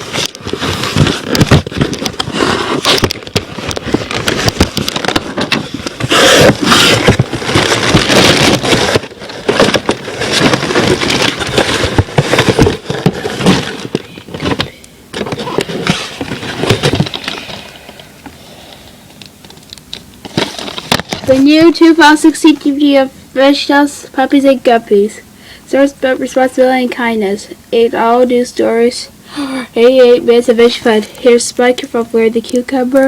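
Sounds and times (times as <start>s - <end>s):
packaging crackling and rustling: 0.0s - 22.8s.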